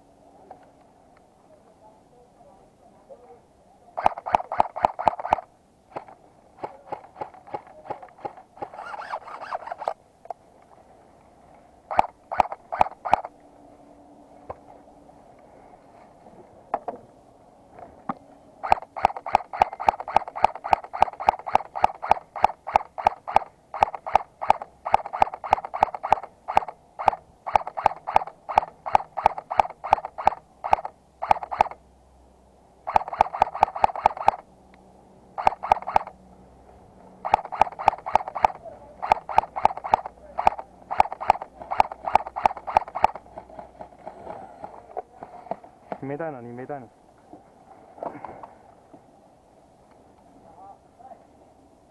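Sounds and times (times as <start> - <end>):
airsoft gun firing full auto: 4.0 - 10.0, 11.9 - 13.3, 18.6 - 31.8, 32.9 - 34.4, 35.4 - 36.1, 37.2 - 43.9.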